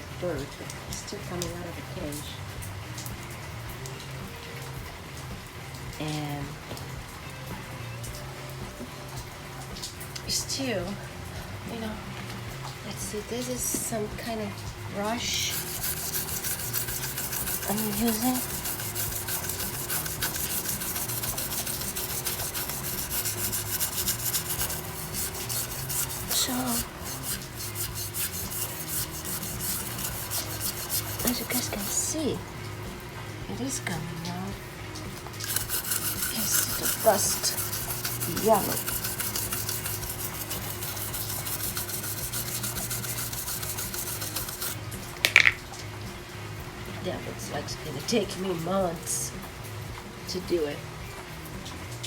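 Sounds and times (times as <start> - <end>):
stiff brush scrubbing metal bars: 8.6 - 32.8, 35.2 - 45.2.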